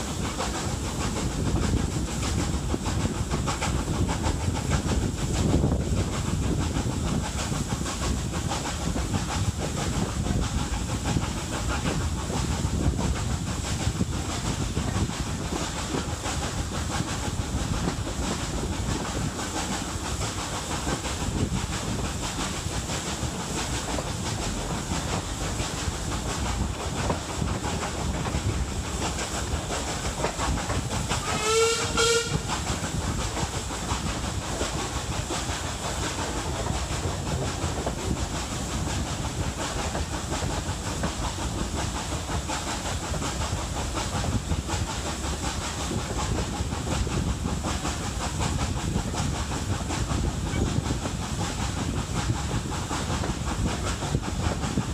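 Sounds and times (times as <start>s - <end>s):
steam locomotive exhaust and wheels: 0.0s - 54.9s
steam whistle blast: 31.2s - 32.4s.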